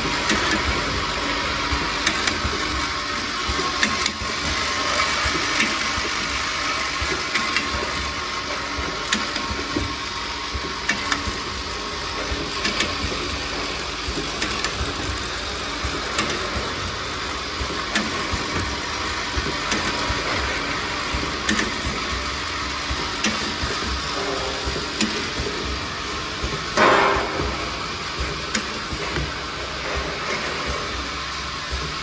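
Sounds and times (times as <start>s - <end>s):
machine whirring and hissing: 0.0s - 32.0s.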